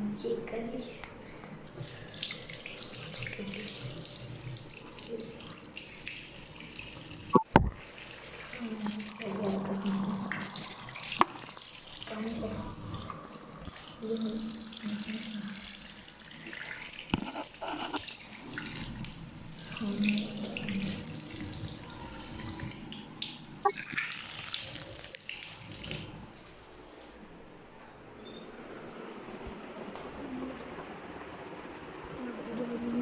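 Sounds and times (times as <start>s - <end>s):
water running from tap: 1.6s - 26.2s.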